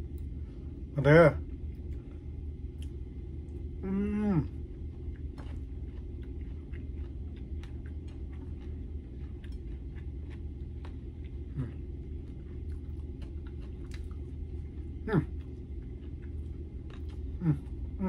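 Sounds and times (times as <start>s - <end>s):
steady low hum: 0.0s - 18.0s
person chewing food: 1.5s - 18.0s
falling throat hum: 3.8s - 4.6s, 15.0s - 15.4s, 17.3s - 18.0s.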